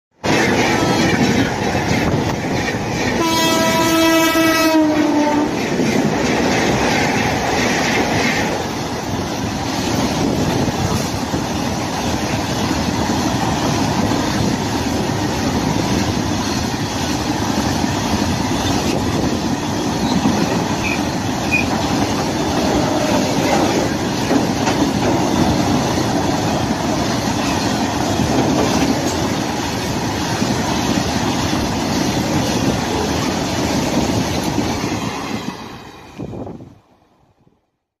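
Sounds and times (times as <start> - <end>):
freight train wheels on rails: 0.1 - 37.4
locomotive horn: 3.2 - 5.6.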